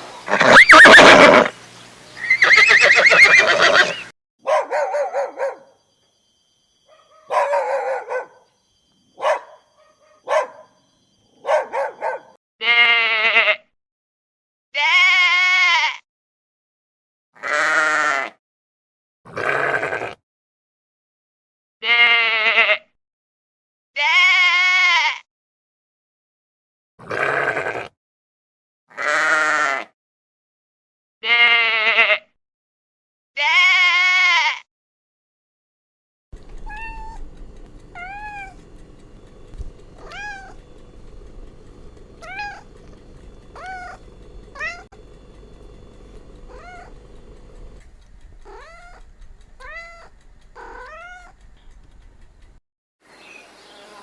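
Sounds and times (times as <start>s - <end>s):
cat mewing: 0.3s - 1.5s, 33.4s - 34.6s, 36.5s - 37.3s, 37.9s - 38.6s, 40.0s - 40.7s, 42.2s - 42.7s, 43.6s - 45.0s, 46.5s - 47.0s, 48.4s - 51.4s
sheep bleating: 12.6s - 13.6s, 14.8s - 16.0s, 17.4s - 18.4s, 19.3s - 20.2s, 21.8s - 22.8s, 24.0s - 25.2s, 27.0s - 27.9s, 28.9s - 29.9s, 31.2s - 32.3s, 33.4s - 34.7s, 36.4s - 37.3s, 37.9s - 38.6s, 39.2s - 45.0s, 46.1s - 47.0s, 48.4s - 51.4s.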